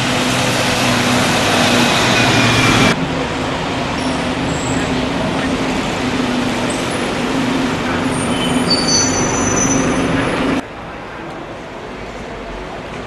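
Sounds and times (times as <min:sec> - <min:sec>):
train rumbling past: 0:00.0 - 0:13.0
high-pitched wheel squeal: 0:08.1 - 0:10.5.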